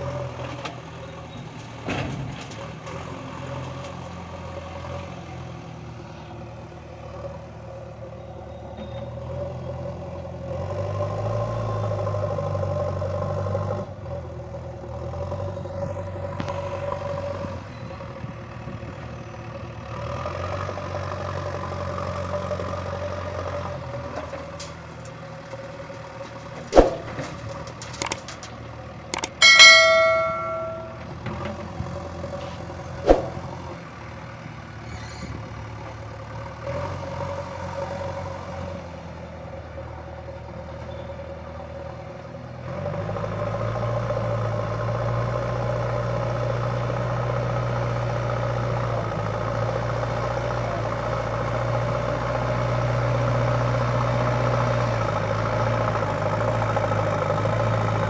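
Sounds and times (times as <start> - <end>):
sharp metal knocks: 26.7 - 27.4, 29.2 - 31.0
loud metallic clang: 26.8 - 27.3, 29.2 - 31.0.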